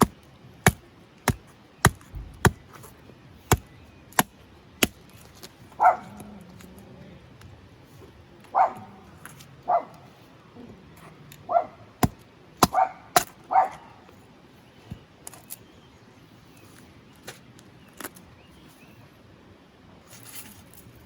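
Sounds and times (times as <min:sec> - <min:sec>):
sharp knocks: 0:01.3 - 0:02.9
dog barking: 0:05.8 - 0:06.2, 0:08.5 - 0:09.0, 0:09.6 - 0:10.0, 0:11.5 - 0:11.9, 0:12.7 - 0:14.0.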